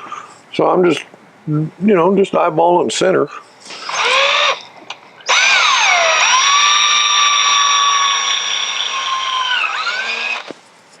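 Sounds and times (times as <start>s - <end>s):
electric drill boring into metal: 3.7s - 10.5s.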